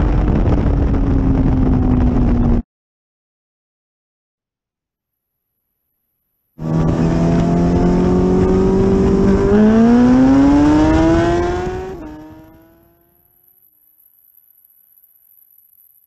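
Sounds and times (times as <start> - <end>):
motorcycle engine revving: 6.6 - 13.6
gear change: 6.6 - 15.8.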